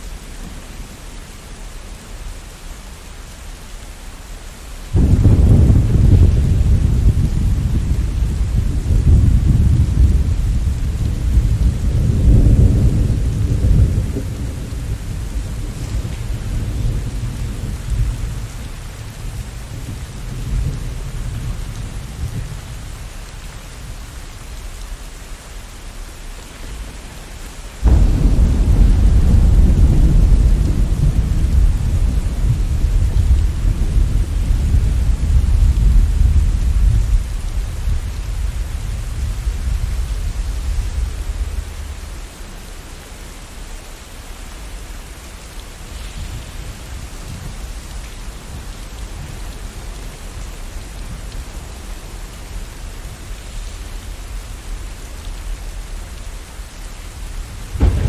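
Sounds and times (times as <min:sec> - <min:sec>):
steady rain: 0:00.0 - 0:58.0
rolling thunder: 0:04.9 - 0:23.1, 0:27.8 - 0:43.0, 0:57.1 - 0:58.0.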